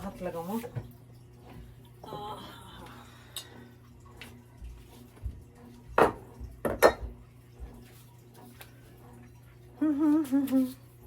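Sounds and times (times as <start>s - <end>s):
pots and utensils clattering: 6.0s - 7.2s.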